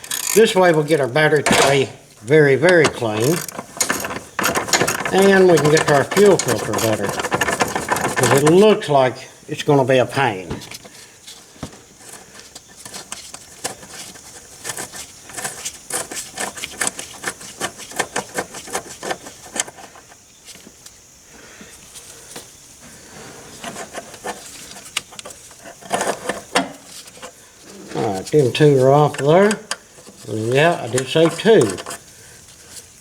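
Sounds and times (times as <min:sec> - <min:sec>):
socket ratchet clicking: 0:00.0 - 0:01.8, 0:02.6 - 0:08.5.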